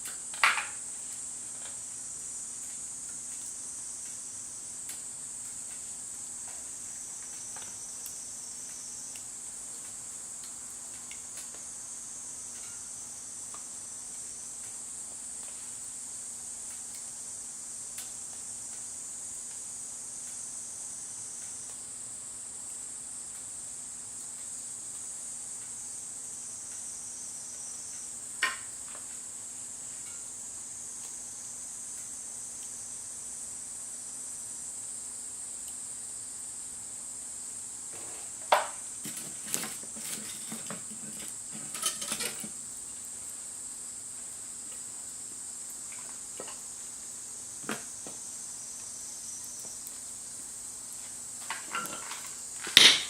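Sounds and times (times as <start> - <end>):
insects trilling: 0.0 - 53.0
faint ticks: 21.3 - 21.8, 26.6 - 26.9, 27.5 - 28.1.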